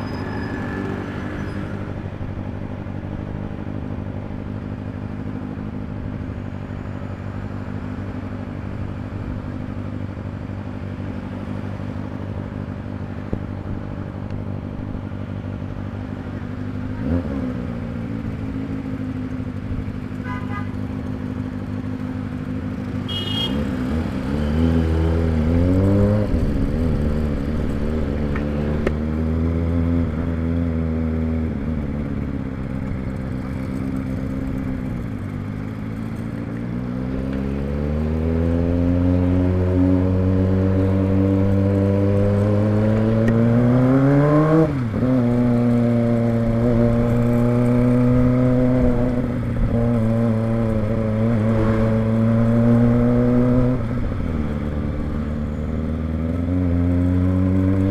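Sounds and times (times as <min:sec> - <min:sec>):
motorcycle engine revving: 0:15.8 - 0:57.9.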